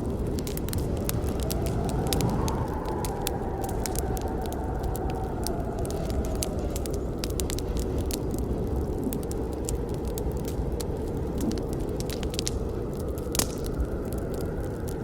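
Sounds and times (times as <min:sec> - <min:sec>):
burning wood crackling and popping: 0:00.0 - 0:15.0
low rumble of flames: 0:00.0 - 0:15.0.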